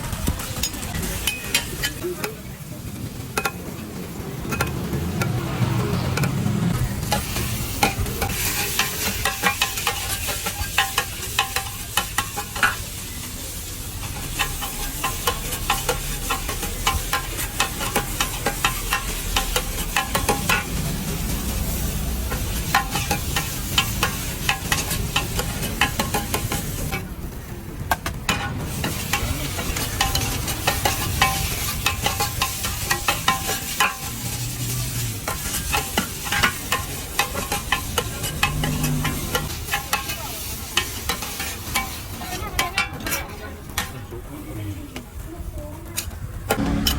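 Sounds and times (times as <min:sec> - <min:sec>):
food sizzling in a pan: 0:00.1 - 0:27.0, 0:28.3 - 0:43.5
metal spatula scraping a pan: 0:07.0 - 0:12.9, 0:21.6 - 0:27.0, 0:28.3 - 0:43.4.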